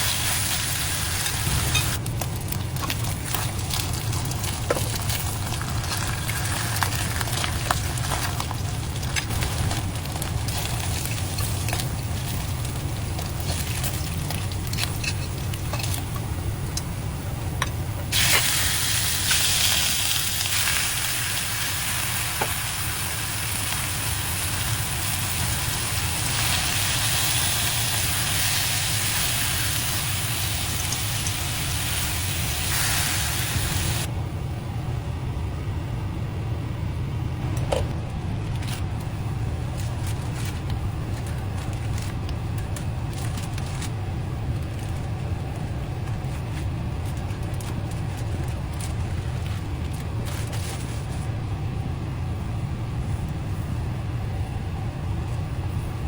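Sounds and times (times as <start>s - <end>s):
food sizzling in a frying pan: 0.0s - 2.0s, 18.1s - 34.1s.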